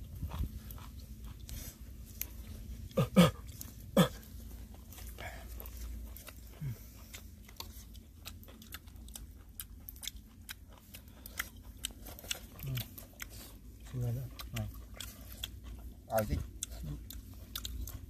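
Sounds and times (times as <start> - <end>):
chewing and crunching: 0.0 - 18.0.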